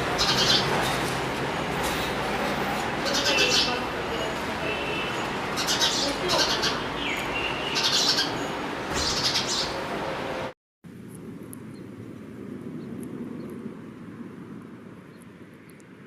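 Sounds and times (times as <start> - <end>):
birds chirping: 0.0 - 9.9
dense background noise: 0.0 - 12.9.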